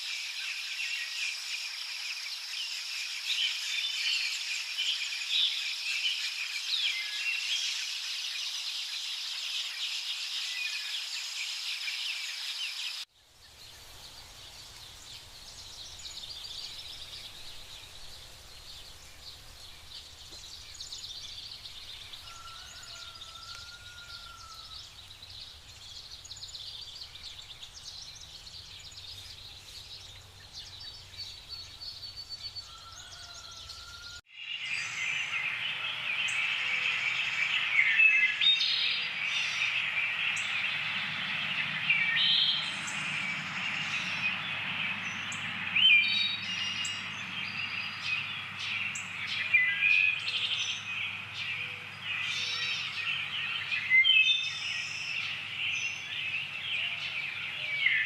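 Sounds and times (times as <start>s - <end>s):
birds chirping and calling: 13.5s - 58.0s.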